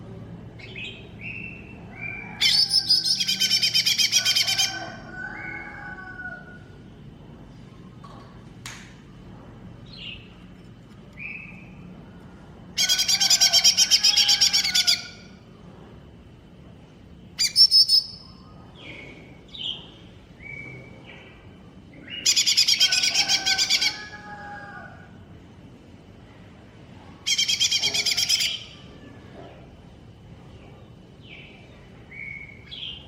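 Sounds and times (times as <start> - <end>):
bird whistling and trilling: 2.1 - 4.0, 17.4 - 18.4.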